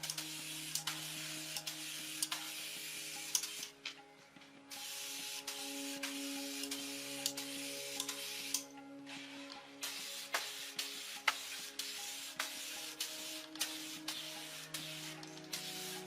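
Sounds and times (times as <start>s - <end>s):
small clicks: 0.0s - 2.6s, 3.2s - 4.0s, 5.4s - 8.8s
background music: 0.0s - 16.0s
steady hiss: 9.8s - 16.0s.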